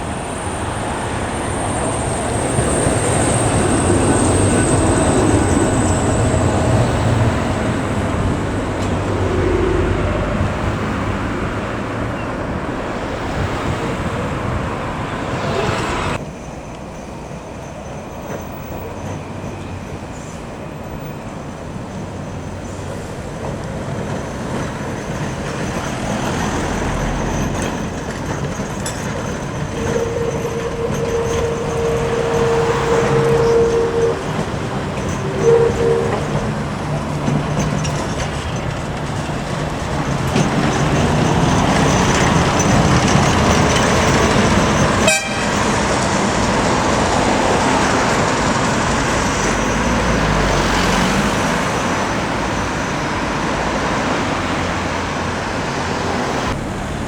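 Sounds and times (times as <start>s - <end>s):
tram wheels and motors rumbling: 0.0s - 57.0s
high thin whine: 29.1s - 36.6s.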